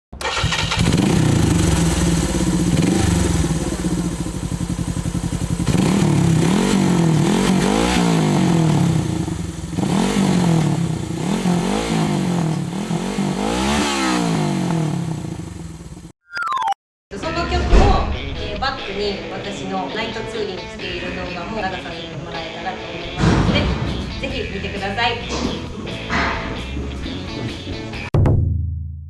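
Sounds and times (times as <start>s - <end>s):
motorcycle engine idling and revving: 0.2s - 16.1s.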